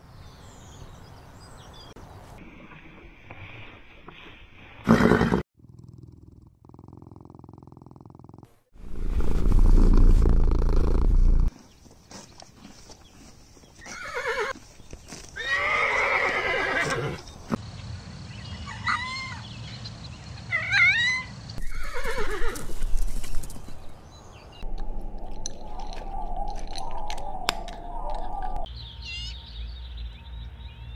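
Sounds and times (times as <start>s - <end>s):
horses neighing: 13.8s - 14.6s, 15.4s - 17.2s, 21.6s - 22.8s.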